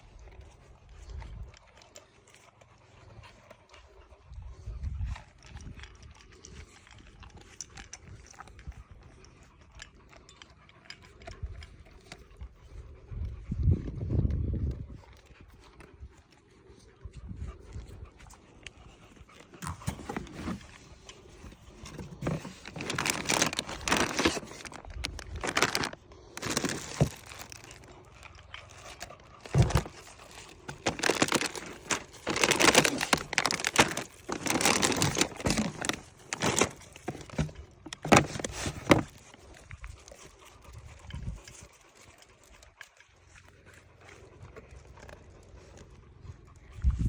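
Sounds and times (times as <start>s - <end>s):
packaging crinkling and rustling: 19.4s - 40.6s
packaging tearing: 21.7s - 28.0s, 28.7s - 39.5s.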